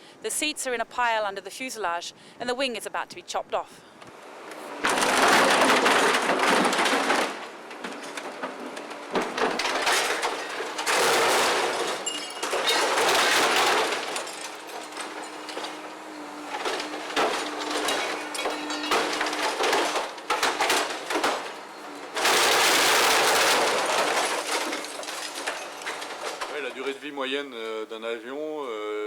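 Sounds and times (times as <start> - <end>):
tearing grinding metal: 4.8 - 26.7.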